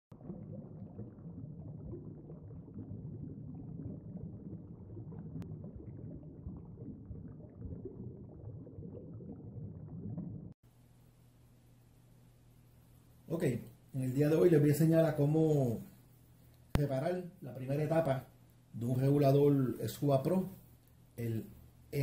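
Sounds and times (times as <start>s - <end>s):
underwater bubbling: 0.1s - 10.6s
low rumbling water: 0.1s - 11.7s.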